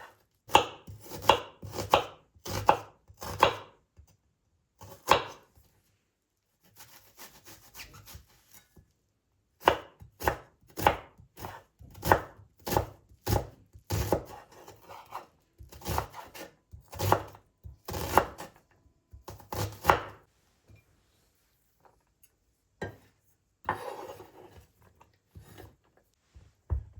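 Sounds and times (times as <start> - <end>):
knife chopping on cutting board: 0.0 - 3.8, 4.8 - 5.5, 6.7 - 8.2, 9.6 - 18.6, 19.2 - 20.3, 22.8 - 24.7, 25.3 - 25.7.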